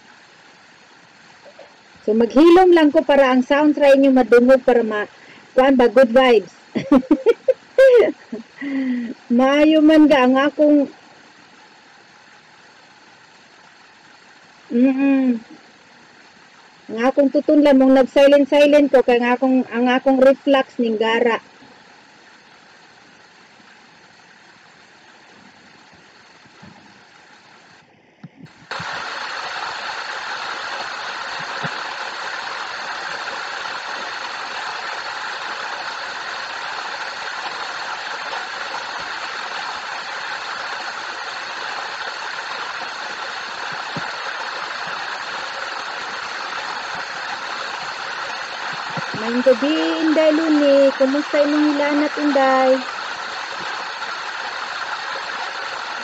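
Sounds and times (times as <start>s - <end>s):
waterfall rushing: 28.6s - 56.0s.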